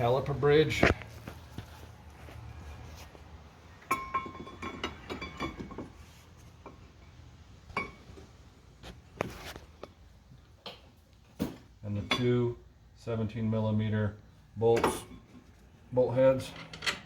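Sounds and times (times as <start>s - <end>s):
metallic ring: 3.9s - 5.8s.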